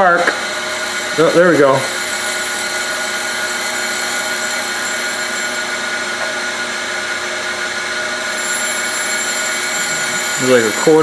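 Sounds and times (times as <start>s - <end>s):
grinder wheel on steel: 0.0s - 6.8s, 8.1s - 11.0s.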